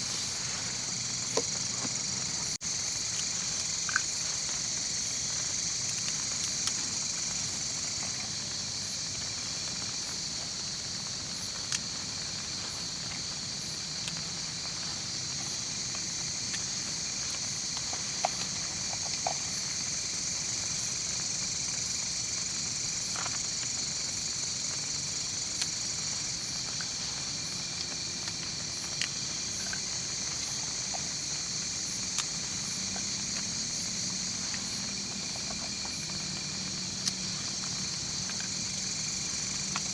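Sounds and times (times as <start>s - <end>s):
crickets buzzing: 0.0s - 39.9s.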